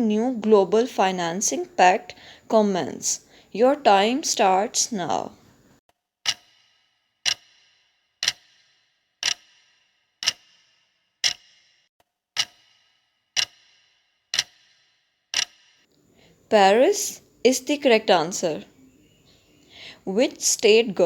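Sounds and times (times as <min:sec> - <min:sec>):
clock ticking with ringing tail: 0:06.2 - 0:15.9.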